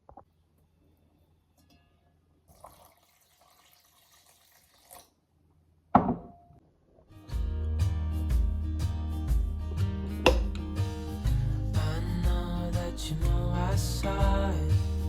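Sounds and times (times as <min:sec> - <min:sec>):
water running in thin stream: 0:02.5 - 0:05.2
background music: 0:07.2 - 0:15.0.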